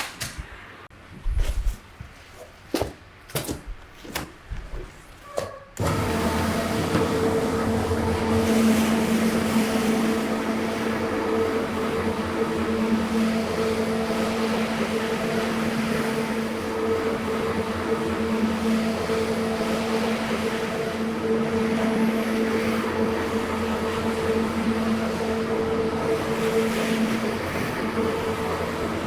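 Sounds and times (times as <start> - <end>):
carpet cleaning machine motor: 5.8 - 29.0.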